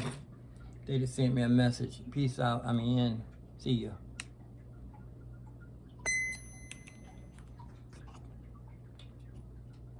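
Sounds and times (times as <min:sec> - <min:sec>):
low hum: 0:05.0 - 0:09.8
short electronic beep: 0:06.1 - 0:07.2.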